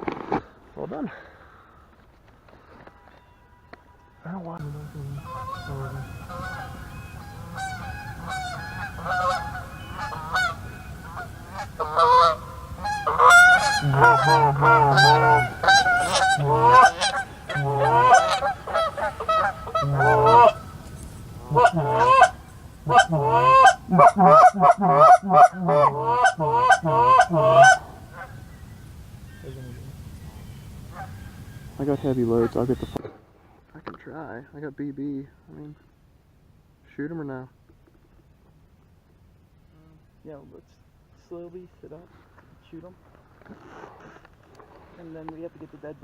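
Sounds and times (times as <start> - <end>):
geese honking: 2.7 - 33.0.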